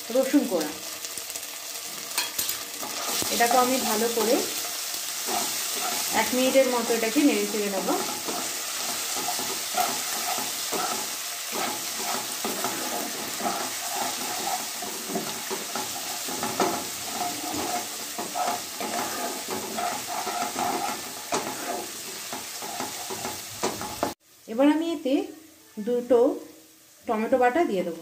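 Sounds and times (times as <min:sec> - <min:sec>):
onions sizzling in hot oil: 0:00.0 - 0:28.0
spatula scraping a pan: 0:02.2 - 0:24.2.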